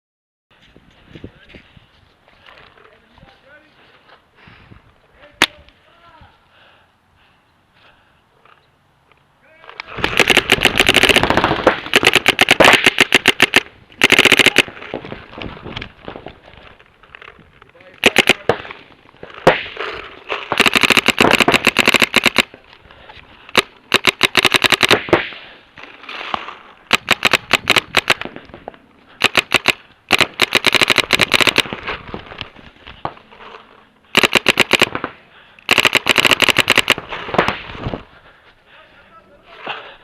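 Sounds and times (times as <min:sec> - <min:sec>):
paintball markers firing rapidly: 0:09.8 - 0:14.9, 0:18.0 - 0:22.6, 0:23.5 - 0:25.5, 0:26.9 - 0:28.4, 0:29.1 - 0:31.9, 0:34.1 - 0:37.8.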